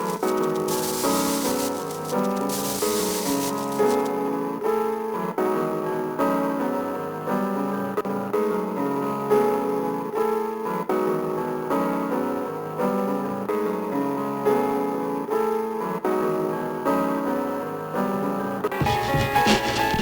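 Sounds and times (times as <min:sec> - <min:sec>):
sampled piano chords: 0:00.0 - 0:04.1.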